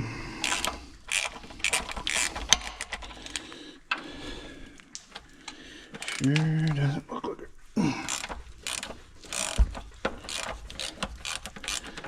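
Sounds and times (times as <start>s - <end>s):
socket ratchet clicking: 0.4s - 4.1s, 6.0s - 6.8s, 8.0s - 12.0s.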